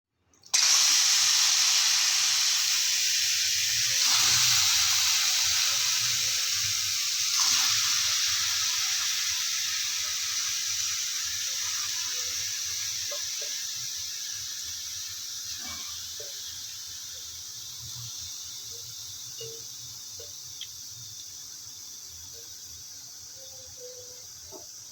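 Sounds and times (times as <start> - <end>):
chicken sizzling in a pan: 0.6 - 24.9.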